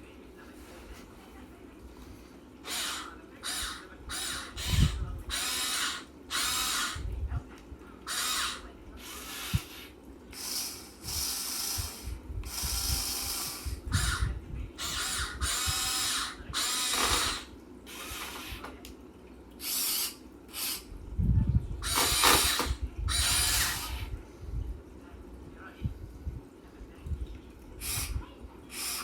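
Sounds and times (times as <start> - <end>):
electric gear motors whirring: 2.7 - 7.0, 10.4 - 14.2, 14.8 - 18.8, 21.8 - 24.1, 27.8 - 29.0.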